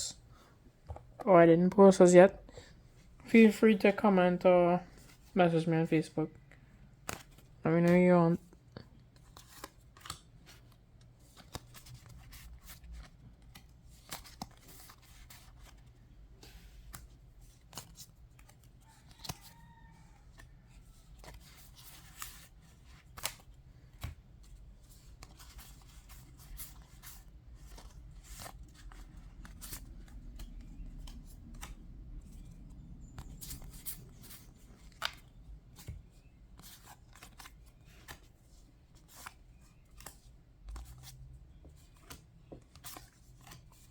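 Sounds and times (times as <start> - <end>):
cards clicking and snapping: 7.0 - 7.4, 9.1 - 12.8, 21.2 - 24.2, 33.2 - 36.0
low steady hum: 20.7 - 43.9.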